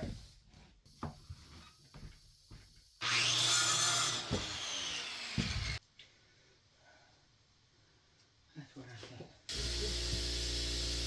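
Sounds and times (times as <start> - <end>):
power saw cutting wood: 3.0 - 5.8, 9.5 - 11.0.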